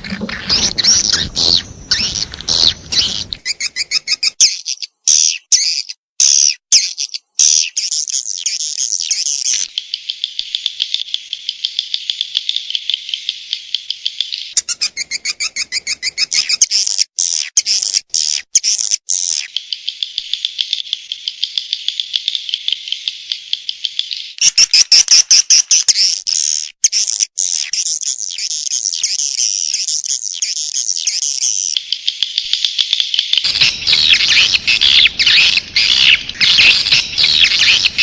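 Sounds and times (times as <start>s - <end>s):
high-pitched twittering bird chirps: 0.0s - 6.0s, 33.4s - 38.0s.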